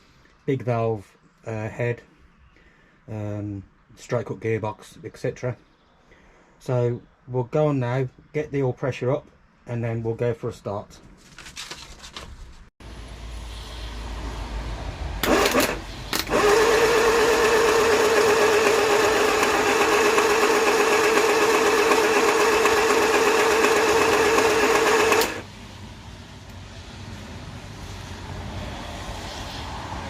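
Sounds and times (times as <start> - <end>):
engine cranking on starter motor: 15.2 - 25.5.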